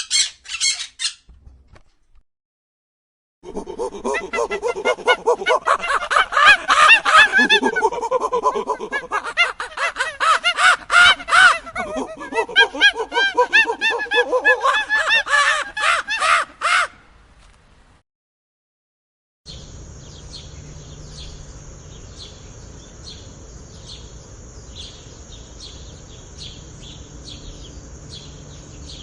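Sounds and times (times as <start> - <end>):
flock of birds calling: 4.0 - 16.9.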